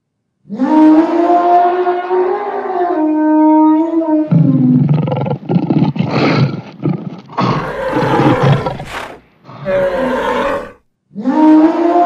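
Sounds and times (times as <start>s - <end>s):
big cat roaring: 4.3s - 10.8s
long pitched animal call: 7.4s - 10.8s.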